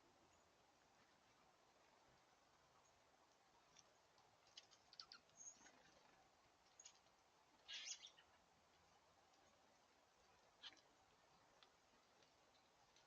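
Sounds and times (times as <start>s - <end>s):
small birds clicking and scratching: 3.6s - 8.1s, 8.7s - 13.0s
high bird chip calls: 7.6s - 8.3s.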